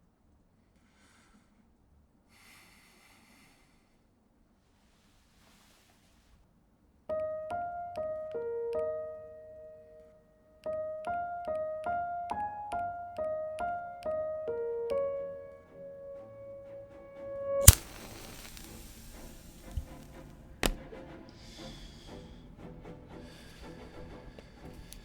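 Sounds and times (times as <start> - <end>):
solo piano slow melody: 7.1 - 21.4.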